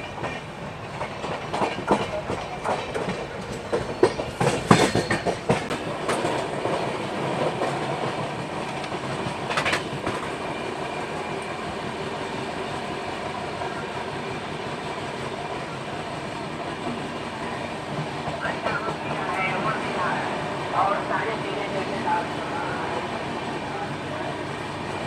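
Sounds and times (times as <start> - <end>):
train wheels clattering over joints: 0.0 - 10.4.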